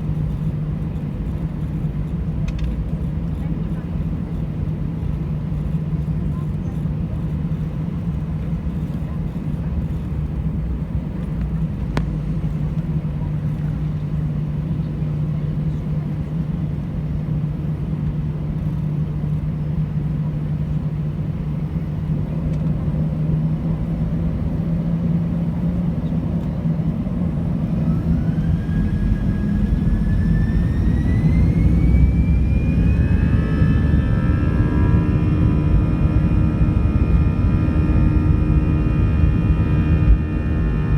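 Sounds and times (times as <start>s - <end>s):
jet engines humming: 9.8s - 40.9s
jet engine whine rising in pitch: 26.7s - 40.9s.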